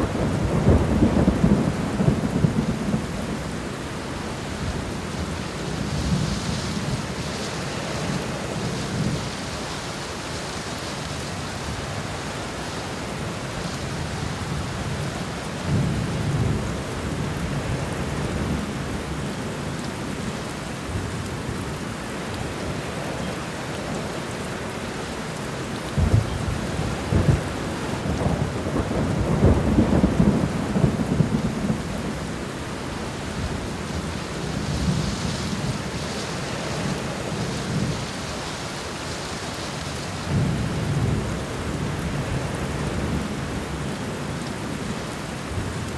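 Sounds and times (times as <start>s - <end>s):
rolling thunder: 0.0s - 3.6s, 25.9s - 32.4s
steady rain: 0.0s - 45.9s.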